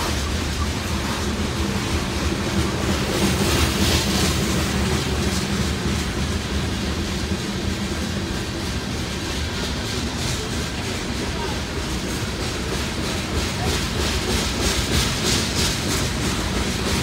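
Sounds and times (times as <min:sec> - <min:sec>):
steel wheels rumbling on rail: 0:00.0 - 0:17.0.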